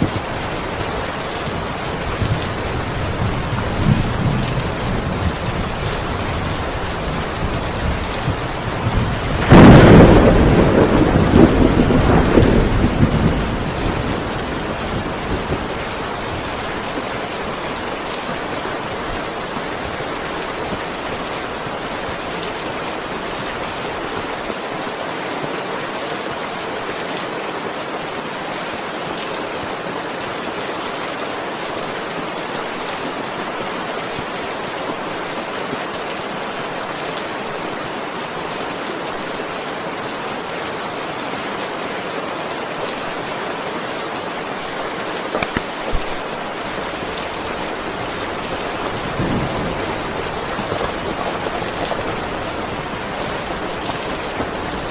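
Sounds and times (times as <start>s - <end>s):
heavy rain falling: 0.0s - 54.9s
thunderclap rumbling: 2.0s - 16.6s, 45.3s - 54.9s.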